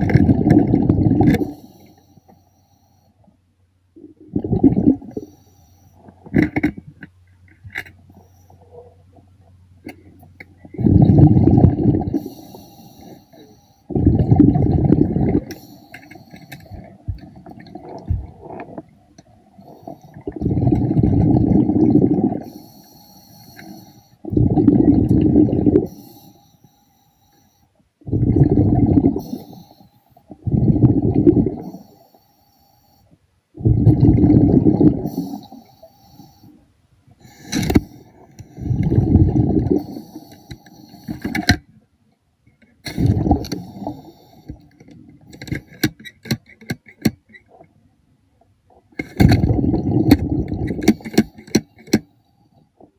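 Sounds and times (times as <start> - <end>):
exhaled bubbles rumbling underwater: 0.0 - 1.8, 4.0 - 5.3, 8.6 - 12.7, 13.9 - 15.7, 16.6 - 22.6, 24.2 - 26.0, 28.0 - 29.6, 30.3 - 31.9, 33.6 - 35.6, 37.6 - 40.3, 42.9 - 45.3, 48.7 - 51.0
faint hiss of inhalation: 1.5 - 3.2, 5.2 - 6.0, 12.2 - 13.9, 22.4 - 24.2, 25.9 - 27.7, 29.2 - 30.2, 31.6 - 33.2, 35.1 - 36.6, 39.8 - 41.4.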